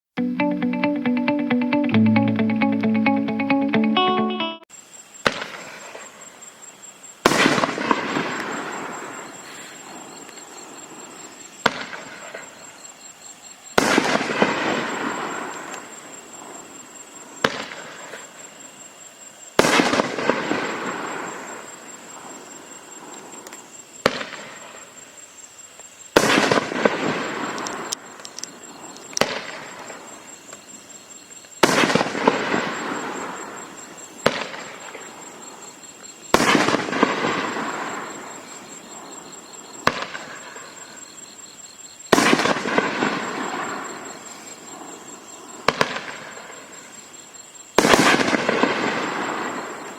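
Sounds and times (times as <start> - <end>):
firework launch crack: 5.2 - 6.3, 7.2 - 10.3, 11.6 - 12.6, 13.7 - 16.0, 17.4 - 18.4, 19.6 - 22.1, 23.4 - 24.9, 26.1 - 30.0, 31.6 - 33.6, 34.2 - 35.1, 36.3 - 38.5, 39.8 - 40.7, 42.1 - 44.4, 45.6 - 46.7, 47.8 - 49.9
loud firework burst: 5.2 - 6.3, 7.2 - 10.2, 10.9 - 12.6, 13.7 - 16.6, 19.6 - 22.3, 26.1 - 27.9, 31.6 - 35.4, 36.3 - 38.8, 42.1 - 44.9, 45.6 - 46.8, 47.8 - 49.9.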